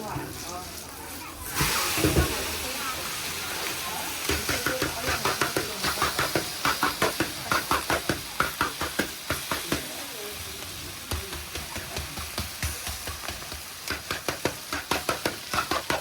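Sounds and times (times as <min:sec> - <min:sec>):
food sizzling: 0:00.0 - 0:16.0
metal spatula striking frying pan: 0:11.1 - 0:16.0.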